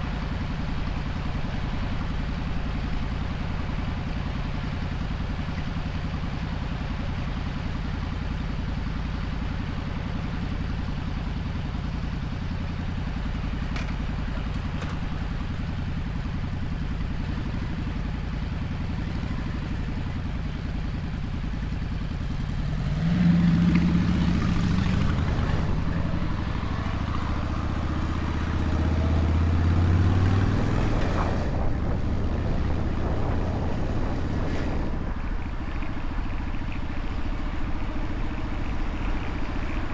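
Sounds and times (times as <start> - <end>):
motorcycle engine revving: 13.2 - 35.4.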